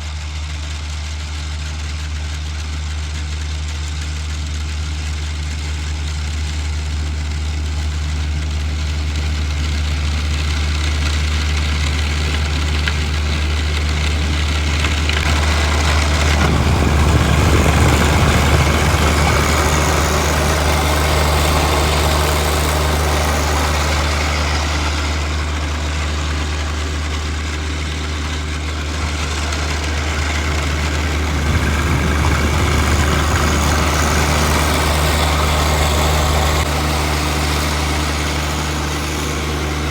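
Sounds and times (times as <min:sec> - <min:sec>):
tractor diesel engine running: 0:00.0 - 0:39.9
rushing noise: 0:14.5 - 0:38.5.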